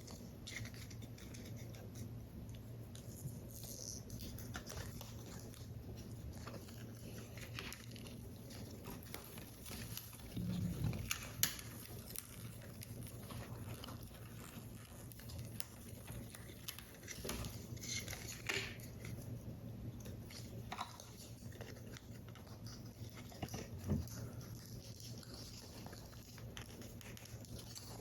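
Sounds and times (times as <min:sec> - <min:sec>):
paper rustling and crinkling: 0:02.9 - 0:19.4.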